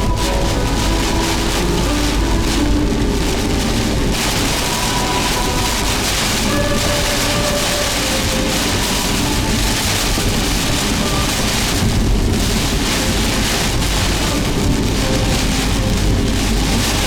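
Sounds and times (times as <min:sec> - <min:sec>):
deep rumble: 0:00.0 - 0:17.0
heavy rain: 0:00.0 - 0:17.0
wind: 0:00.0 - 0:17.0.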